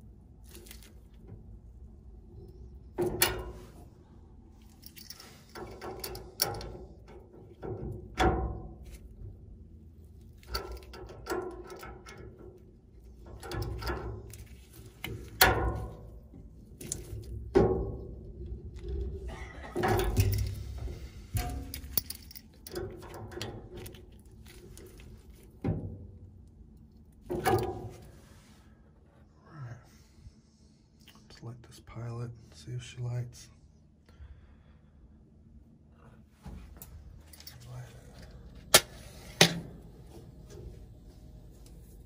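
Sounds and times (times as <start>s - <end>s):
tools clanking on sheet metal: 19.4s - 24.0s.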